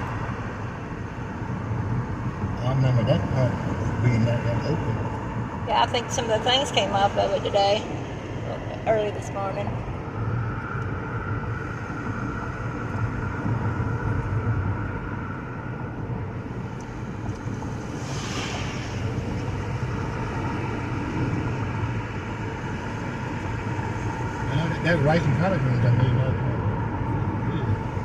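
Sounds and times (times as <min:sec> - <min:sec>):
road and engine rumble: 0:00.0 - 0:28.0
brief rushing hiss: 0:18.0 - 0:19.5.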